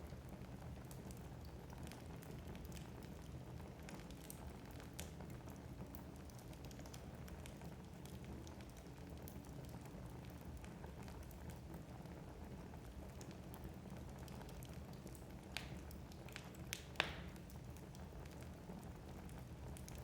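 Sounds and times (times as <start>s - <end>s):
fire crackles: 0.0s - 20.0s
burning logs popping: 13.1s - 20.0s.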